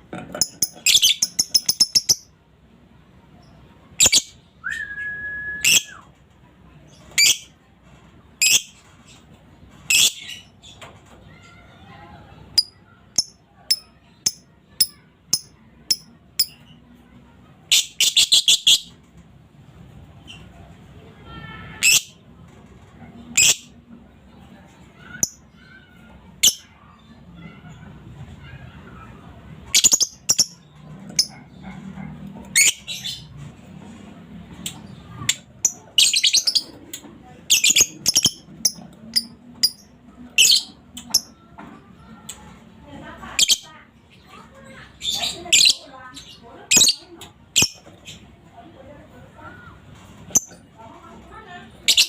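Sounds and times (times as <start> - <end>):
lovebird chirping: 0.4 - 2.3
lovebird chirping and chattering: 0.4 - 2.3, 4.0 - 4.4, 7.0 - 7.5, 8.4 - 8.8, 9.9 - 10.6, 12.5 - 16.8, 17.7 - 18.9, 23.3 - 23.8, 29.7 - 31.4, 32.5 - 33.3, 34.6 - 36.8, 37.5 - 41.3, 43.3 - 43.7, 45.0 - 48.2.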